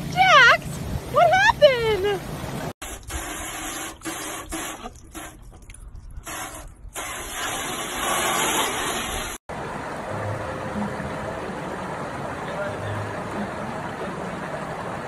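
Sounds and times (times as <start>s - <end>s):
hose nozzle spraying water: 2.8s - 9.4s.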